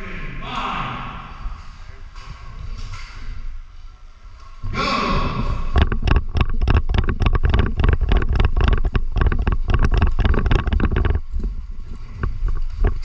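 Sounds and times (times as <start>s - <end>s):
running footsteps: 5.4s - 13.0s
gear rattling: 5.7s - 13.0s.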